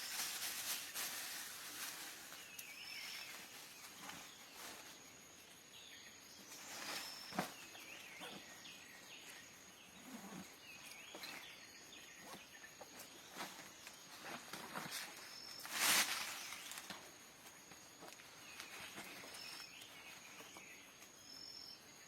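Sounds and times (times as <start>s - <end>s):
bird chirps: 5.8s - 13.0s.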